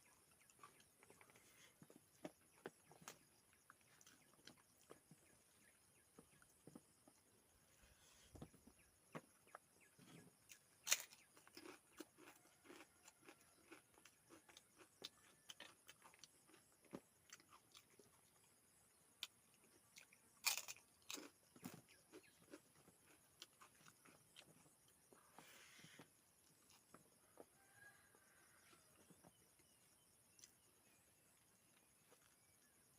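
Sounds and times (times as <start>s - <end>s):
person chewing food: 0.0s - 5.1s, 10.4s - 18.4s, 19.9s - 27.5s.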